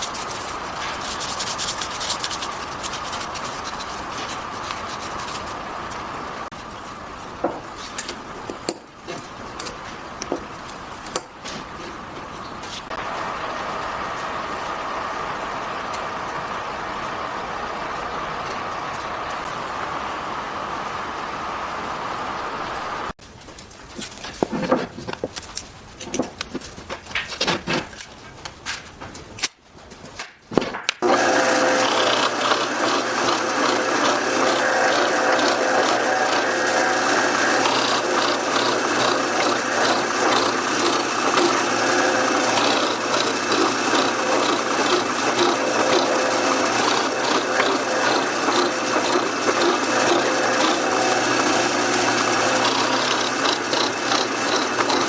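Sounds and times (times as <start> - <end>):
steady hum: 0.0 - 23.2, 31.0 - 55.0
power tool running: 12.9 - 23.2, 31.0 - 55.0.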